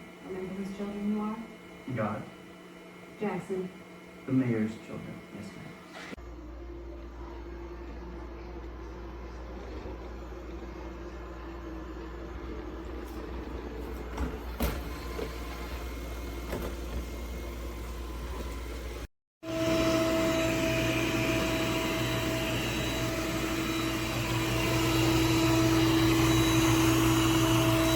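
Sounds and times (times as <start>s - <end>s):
robot vacuum motor hum: 9.0s - 27.9s.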